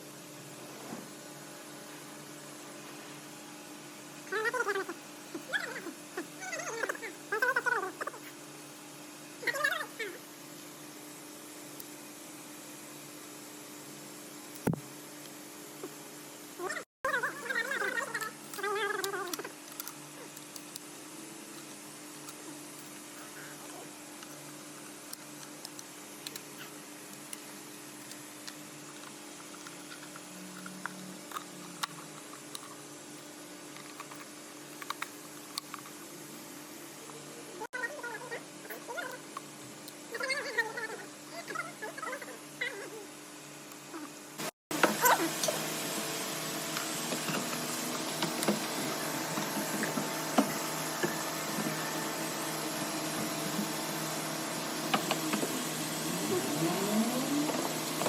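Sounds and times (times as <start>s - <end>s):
small electric motor running: 44.4s - 58.0s.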